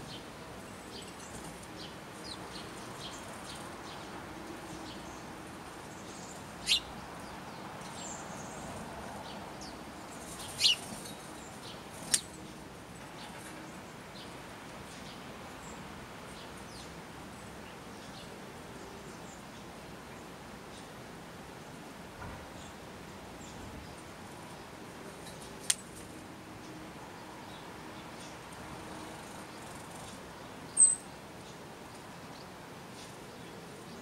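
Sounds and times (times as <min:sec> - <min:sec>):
loud high bird calls: 0:06.0 - 0:06.9, 0:09.6 - 0:11.1.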